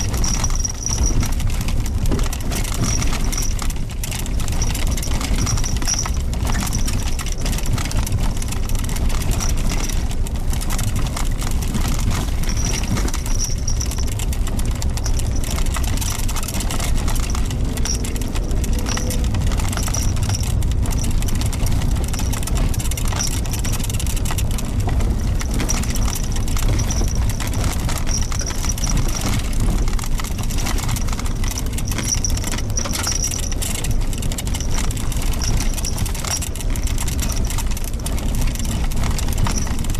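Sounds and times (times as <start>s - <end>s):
car engine and tyre rumble: 0.0s - 39.9s
gravel clicking under tyres: 0.0s - 39.9s.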